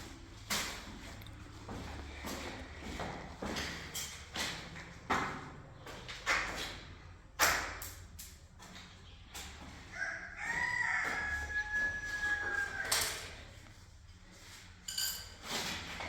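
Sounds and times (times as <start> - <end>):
rooster crowing: 9.9 - 13.5.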